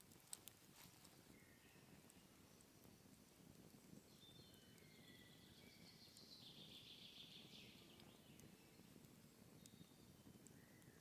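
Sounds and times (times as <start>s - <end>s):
soft ticks: 0.0s - 1.2s, 8.0s - 10.6s
faint forest ambience: 0.0s - 11.0s.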